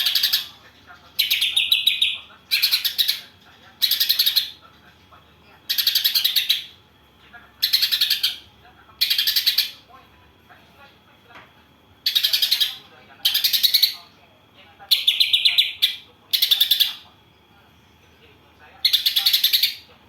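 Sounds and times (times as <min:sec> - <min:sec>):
songbird chattering: 0:00.0 - 0:00.6, 0:01.2 - 0:04.6, 0:05.7 - 0:06.8, 0:07.6 - 0:09.8, 0:12.0 - 0:14.1, 0:14.9 - 0:17.1, 0:18.8 - 0:19.9.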